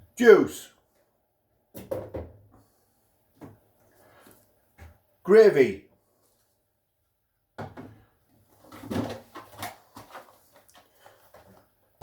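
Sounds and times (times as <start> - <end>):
items clattering in a fridge: 7.6 - 12.0.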